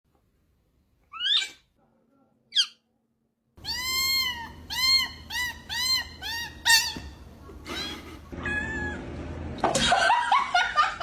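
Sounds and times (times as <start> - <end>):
cat meowing: 3.6 - 7.0, 7.7 - 9.0
harsh cat cries: 7.7 - 9.0.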